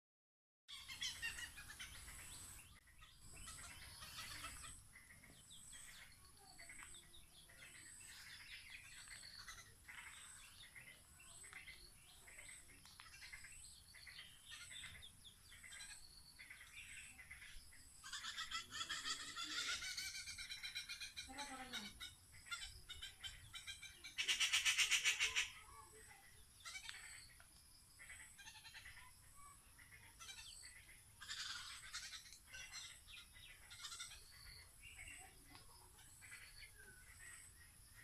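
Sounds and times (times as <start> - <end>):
short repeated bird calls: 0.7 - 38.0.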